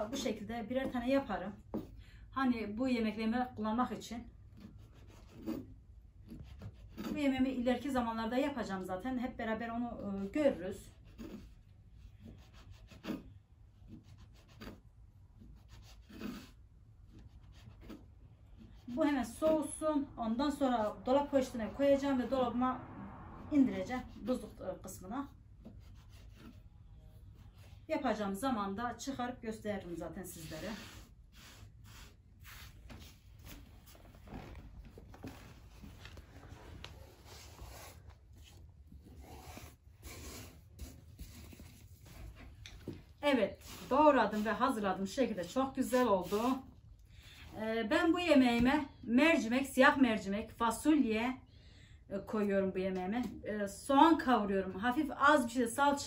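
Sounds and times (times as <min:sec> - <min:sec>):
dough rubbing and scraping on board: 0:04.4 - 0:08.1, 0:09.7 - 0:19.8, 0:24.1 - 0:29.1, 0:29.8 - 0:46.7
dough scraping on a board: 0:04.6 - 0:07.8, 0:10.2 - 0:19.7.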